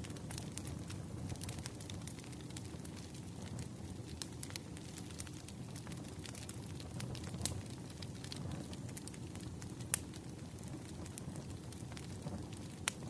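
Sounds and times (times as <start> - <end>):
firewood burning with crackles: 0.0 - 13.0.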